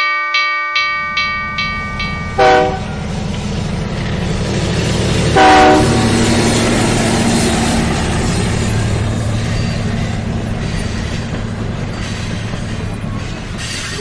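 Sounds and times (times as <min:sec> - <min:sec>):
train rumbling and clattering: 0:00.8 - 0:14.0
train horn toots: 0:02.3 - 0:03.3, 0:05.1 - 0:06.8.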